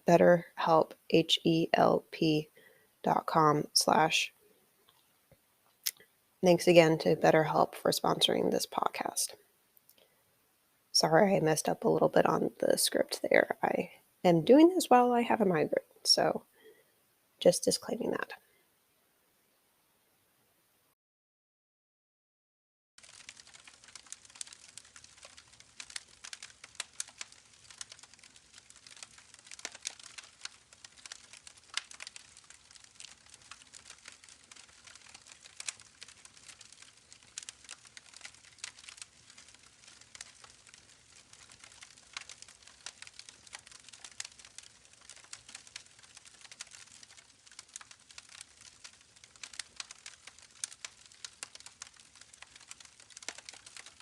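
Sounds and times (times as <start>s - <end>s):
campfire crackling: 23.0s - 54.0s.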